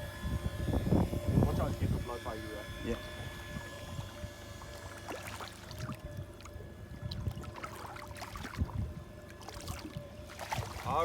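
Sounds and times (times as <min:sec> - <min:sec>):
boat engine humming: 0:00.0 - 0:11.0
water splashing and trickling: 0:04.4 - 0:11.0.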